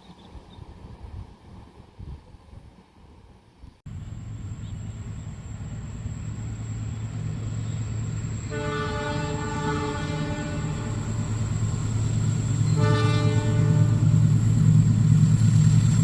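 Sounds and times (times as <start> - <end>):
outdoor ambience: 0.0 - 16.0
train locomotive rumbling: 3.9 - 16.0
train horn blast: 8.4 - 11.2, 12.6 - 14.2.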